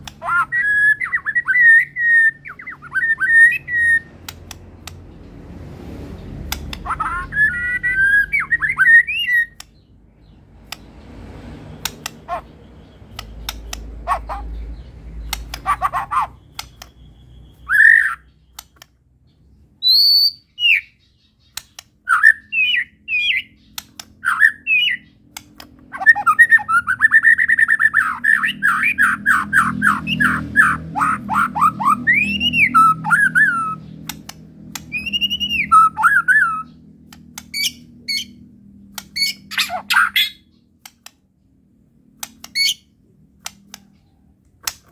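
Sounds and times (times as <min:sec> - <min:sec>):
songbird singing whistled phrases: 0:00.3 - 0:04.2, 0:06.9 - 0:09.8, 0:16.4 - 0:18.6, 0:19.8 - 0:25.2, 0:25.9 - 0:34.1, 0:34.7 - 0:36.9.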